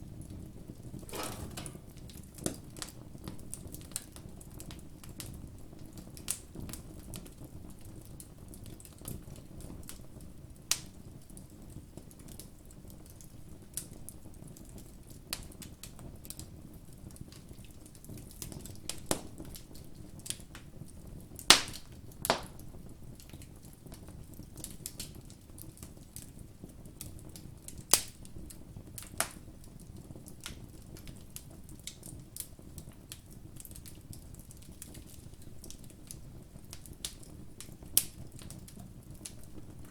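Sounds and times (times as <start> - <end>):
low steady rush of fire: 1.1 - 2.1
campfire crackling and popping: 1.1 - 2.6, 30.0 - 39.9.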